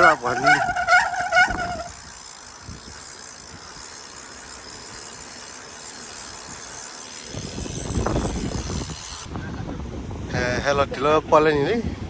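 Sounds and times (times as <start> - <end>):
wind rumble on microphone: 0.0 - 3.0, 7.3 - 12.0
outdoor noise hiss: 1.8 - 12.0.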